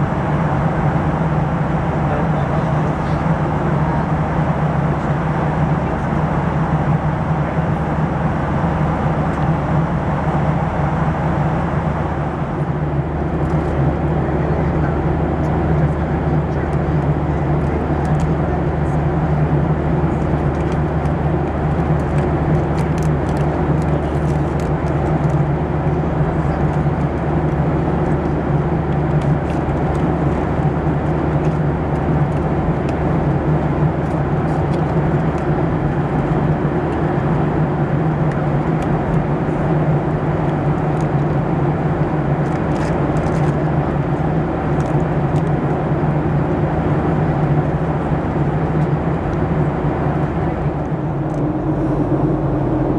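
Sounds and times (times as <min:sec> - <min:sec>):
constant low hum: 0:00.0 - 0:52.9
jet engine drone: 0:00.0 - 0:52.9
airflow rushing past fuselage: 0:49.7 - 0:52.9.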